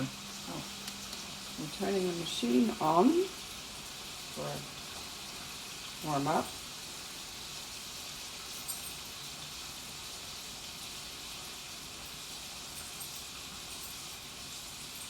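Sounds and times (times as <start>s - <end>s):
espresso machine hissing: 0.0s - 11.2s.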